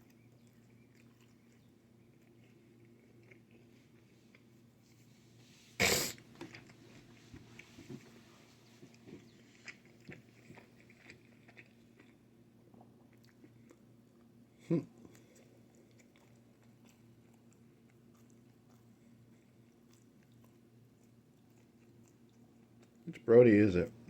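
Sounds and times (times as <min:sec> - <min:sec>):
chewing with wet mouth clicks: 0:00.0 - 0:04.6, 0:08.8 - 0:14.3, 0:15.0 - 0:23.3
faint steady hum: 0:00.0 - 0:24.0.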